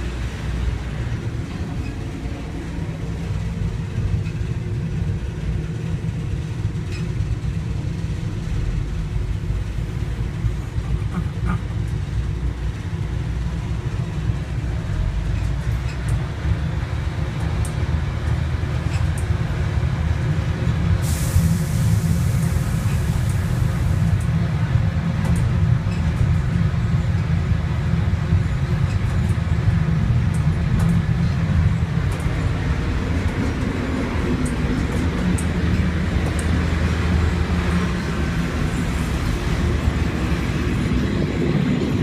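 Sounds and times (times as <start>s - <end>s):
train carriage low rumble: 0.0s - 42.0s
hiss: 21.0s - 24.2s.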